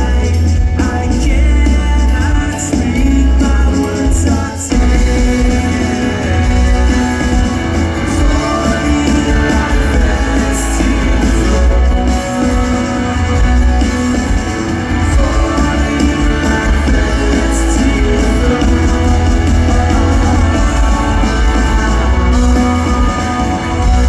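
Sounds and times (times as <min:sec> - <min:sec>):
loud rock band playing: 0:00.0 - 0:24.0
person singing: 0:00.0 - 0:24.0.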